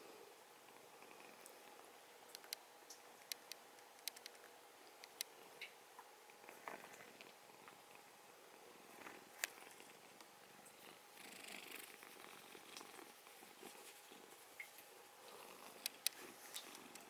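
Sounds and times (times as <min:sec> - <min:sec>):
cat purring: 0:00.7 - 0:01.9, 0:06.4 - 0:17.0.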